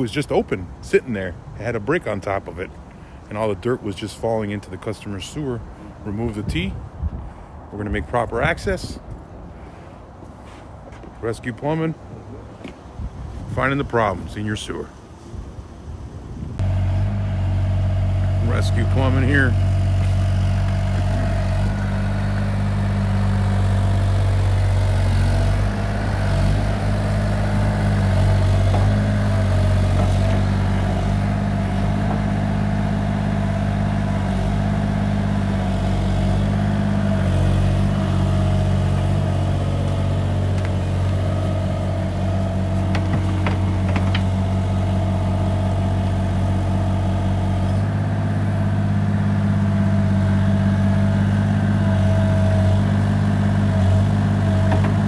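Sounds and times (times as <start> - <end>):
excavator engine running: 15.9 - 55.0.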